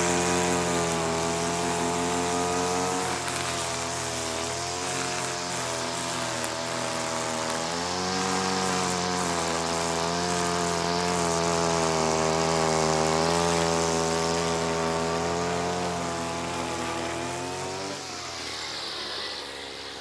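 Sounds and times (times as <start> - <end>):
hedge trimmer motor running: 0.0 - 20.0.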